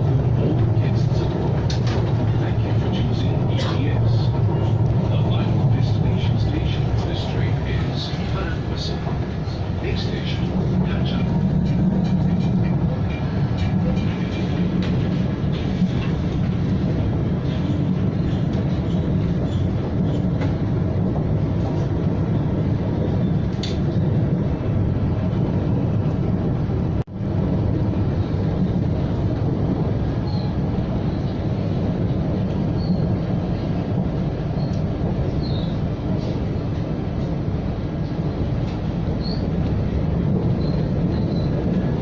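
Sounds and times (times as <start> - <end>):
train carriage rumbling on rails: 0.0 - 42.0
faint clicks: 34.7 - 34.9.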